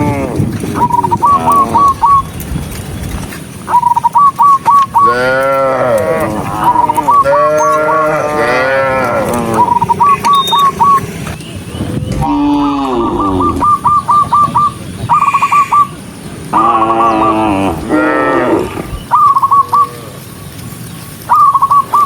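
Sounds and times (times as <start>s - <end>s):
cows mooing: 0.0s - 2.2s, 5.0s - 11.5s, 12.1s - 14.0s, 16.5s - 19.0s.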